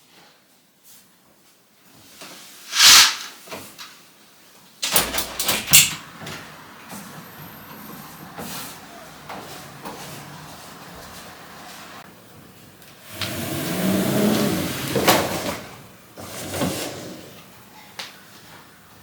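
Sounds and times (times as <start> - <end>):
loud sliding whoosh: 2.6 - 3.4.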